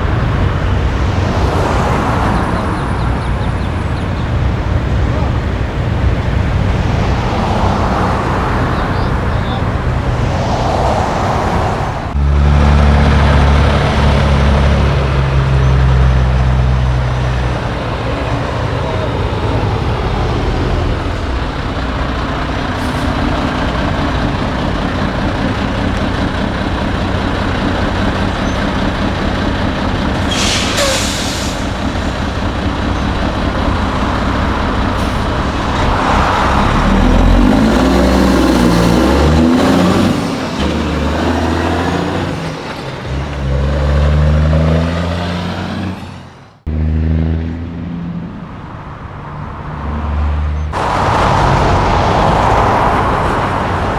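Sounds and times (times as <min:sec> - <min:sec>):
diesel trucks running: 0:00.0 - 0:53.9
truck engine revving: 0:00.0 - 0:53.9
air-brake hiss: 0:30.2 - 0:32.2.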